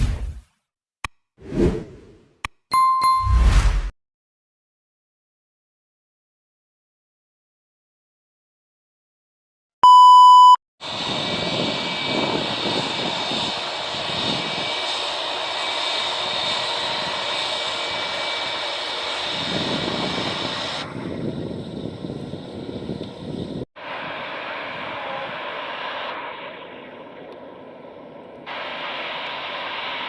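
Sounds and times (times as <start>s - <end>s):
high fan whine: 10.8s - 14.6s, 17.9s - 30.0s
jet engines running: 10.8s - 30.0s.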